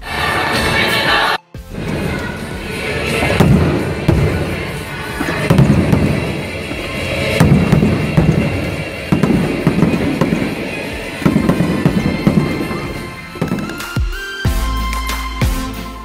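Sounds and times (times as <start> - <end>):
music playing: 0.0 - 16.0
fireworks booming overhead: 1.7 - 14.2.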